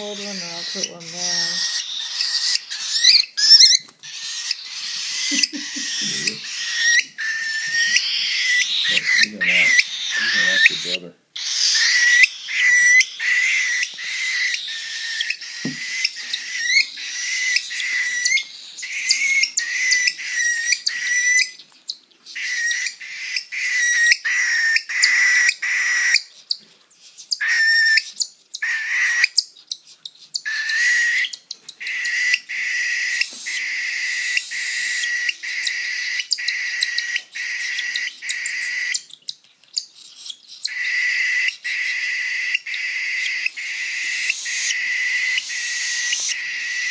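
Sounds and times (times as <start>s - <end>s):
baby birds begging calls: 0.0s - 46.9s.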